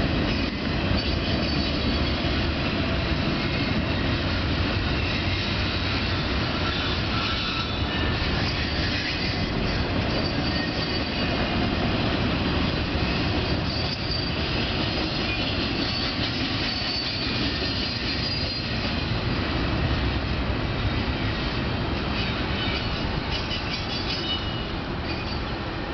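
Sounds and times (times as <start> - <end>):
train wheels rumbling on track: 0.0 - 25.9
wheels squealing: 0.4 - 2.4, 4.9 - 11.6, 13.0 - 19.2, 22.0 - 25.6.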